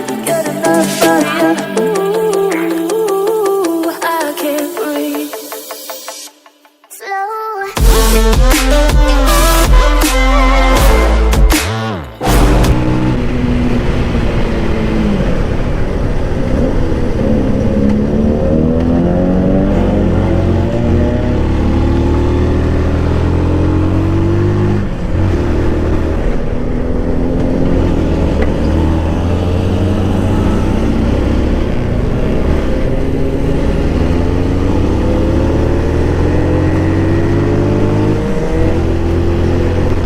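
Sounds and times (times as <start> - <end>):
motorcycle engine accelerating: 10.8 - 40.0.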